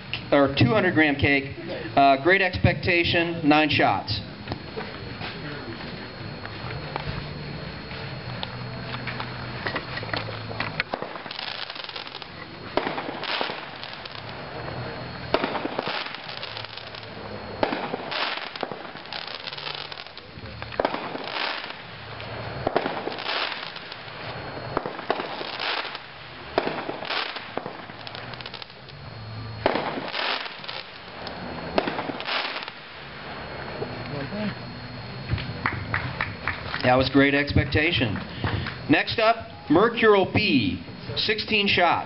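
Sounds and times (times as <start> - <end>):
fireworks shots: 8.5 - 36.9.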